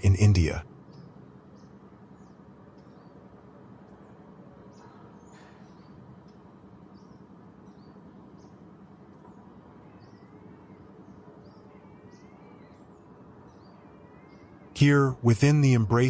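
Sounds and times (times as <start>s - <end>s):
low background noise: 0.0s - 16.0s
bird high chirps: 4.6s - 14.8s.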